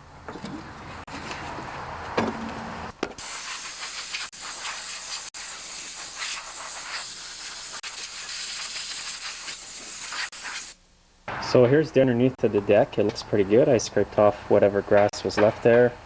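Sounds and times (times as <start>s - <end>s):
air blow gun hissing: 3.2s - 10.8s.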